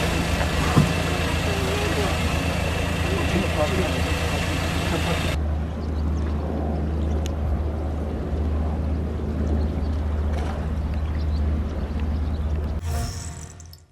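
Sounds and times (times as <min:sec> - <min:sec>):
water noise: 0:00.0 - 0:05.4, 0:12.8 - 0:13.9
boat engine humming: 0:00.0 - 0:05.6.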